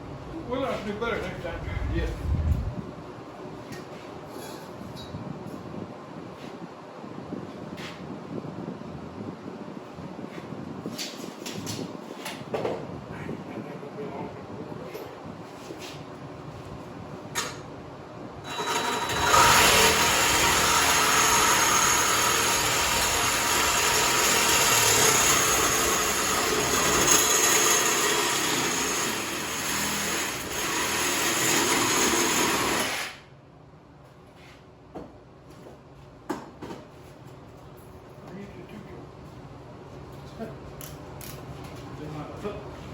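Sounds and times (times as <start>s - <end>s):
power tool working metal: 18.4s - 33.2s.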